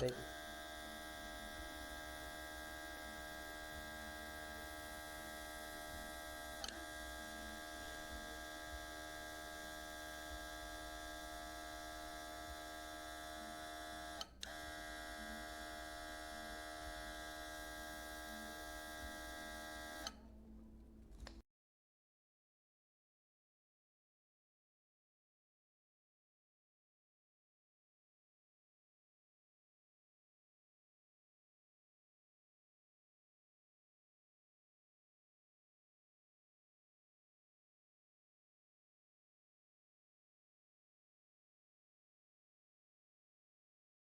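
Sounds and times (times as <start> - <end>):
small compressor motor humming: 0.0 - 20.2.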